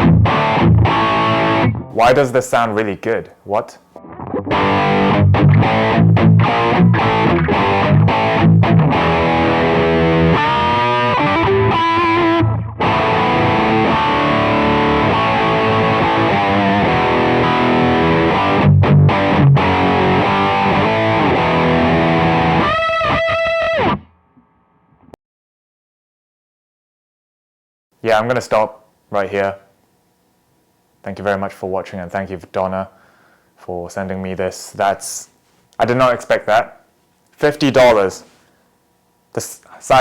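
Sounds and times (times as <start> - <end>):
distorted electric guitar: 0.0 - 2.0, 4.0 - 25.1.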